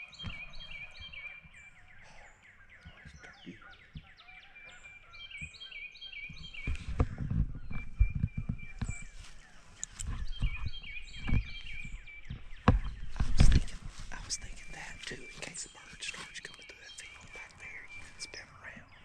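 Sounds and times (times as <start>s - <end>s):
songbirds singing: 0.0s - 19.0s
low thuds: 6.3s - 15.1s
rustling: 6.5s - 16.4s.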